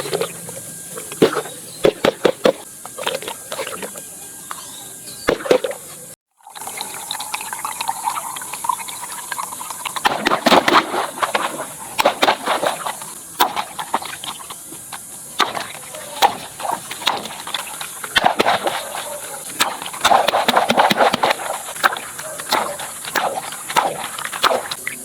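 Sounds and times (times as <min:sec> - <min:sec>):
sharp clicks and pops: 0:07.3 - 0:25.0.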